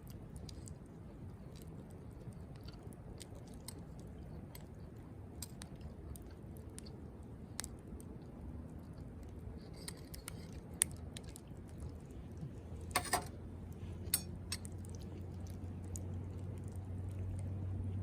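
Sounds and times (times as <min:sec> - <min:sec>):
campfire crackling and popping: 0:00.0 - 0:17.3.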